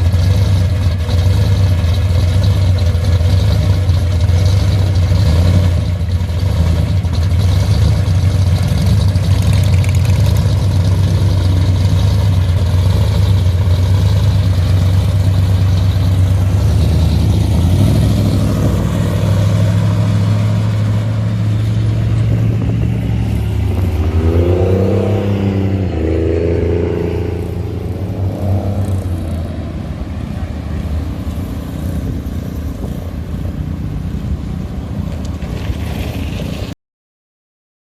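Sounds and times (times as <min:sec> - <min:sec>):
engine revving: 0:00.0 - 0:30.2
hot rod engines rumbling: 0:00.0 - 0:36.7.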